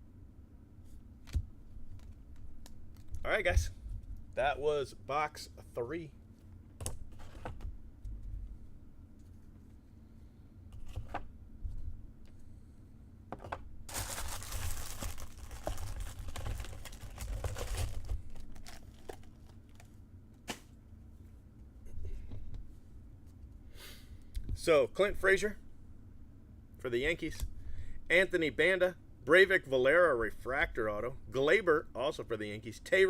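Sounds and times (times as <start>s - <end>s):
wrappers rustling: 13.9s - 20.0s.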